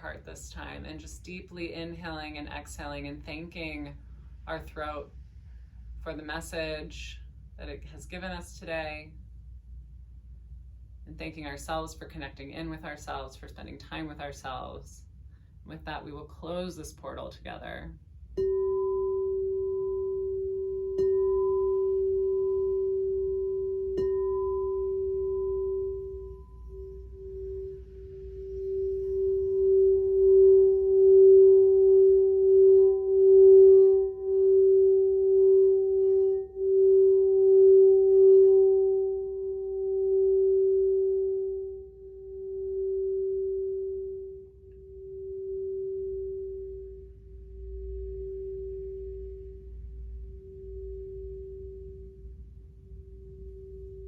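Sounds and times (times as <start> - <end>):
singing bowl ringing: 18.4 - 54.0.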